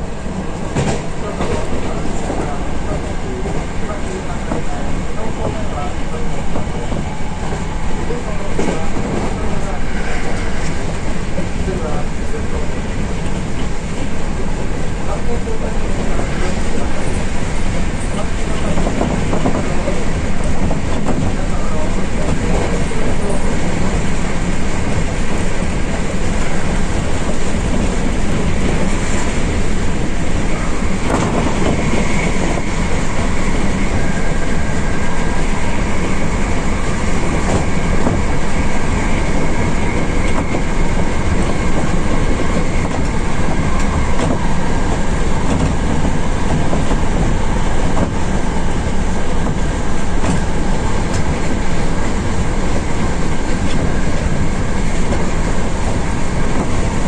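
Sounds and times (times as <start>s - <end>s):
train rolling and wheel noise: 0.0s - 57.0s
clack of rail joints: 0.5s - 57.0s.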